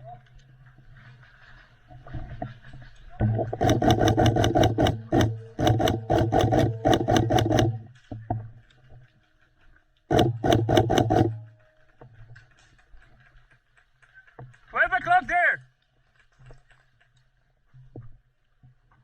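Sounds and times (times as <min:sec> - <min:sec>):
airsoft gun firing full auto: 0:10.1 - 0:11.5.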